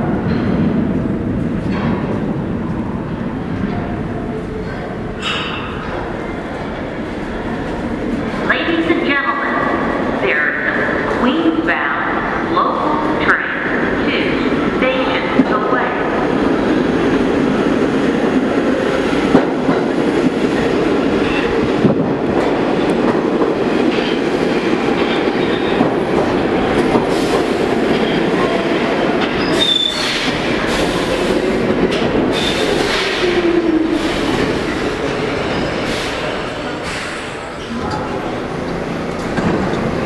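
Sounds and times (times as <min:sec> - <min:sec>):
subway train wheels rumbling on rail: 0:00.0 - 0:40.0
train slowing whine: 0:18.4 - 0:40.0
high wheel squeal: 0:29.3 - 0:30.4.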